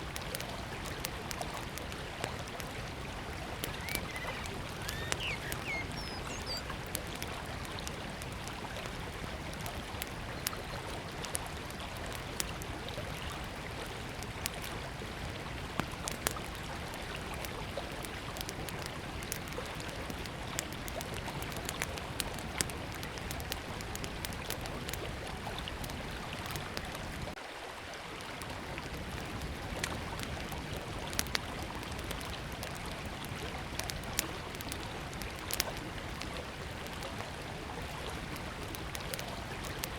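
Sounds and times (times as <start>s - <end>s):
campfire crackling and popping: 0.0s - 27.4s, 28.4s - 39.9s
flowing river: 0.0s - 39.9s
bird chirping: 3.7s - 6.8s.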